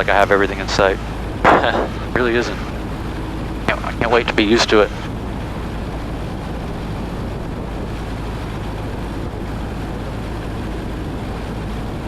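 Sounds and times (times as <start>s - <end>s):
airflow noise: 0.0s - 5.9s
airplane engine and propeller: 0.0s - 12.0s.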